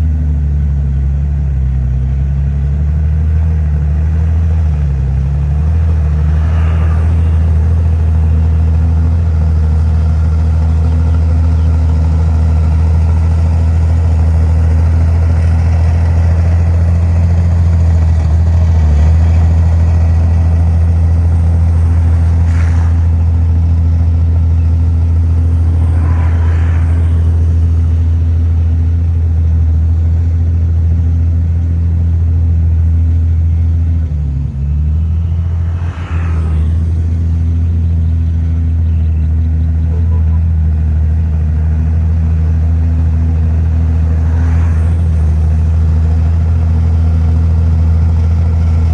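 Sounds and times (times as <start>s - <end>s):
heavy diesel engine running: 0.0s - 48.9s
faint higher sounds: 19.2s - 29.4s, 33.1s - 40.1s.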